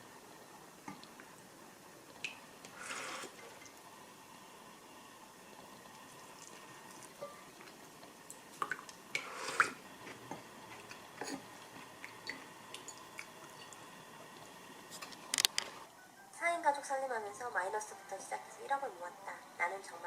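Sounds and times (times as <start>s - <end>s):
small clicks and knocks: 15.0s - 15.8s.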